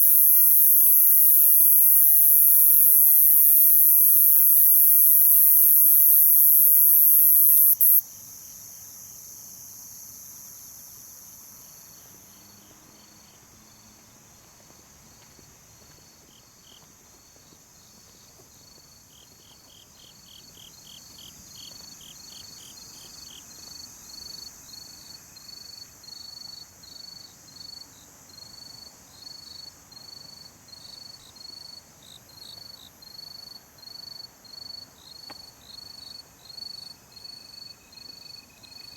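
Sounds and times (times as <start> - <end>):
insect chorus trilling: 0.0 - 8.0
loud high insect buzz: 0.0 - 8.0
insect chirping: 0.0 - 12.0.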